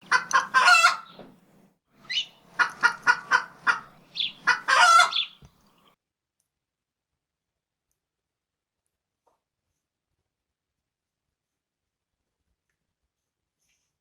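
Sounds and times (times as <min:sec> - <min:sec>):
chicken clucking: 0:00.0 - 0:01.3, 0:02.1 - 0:05.5.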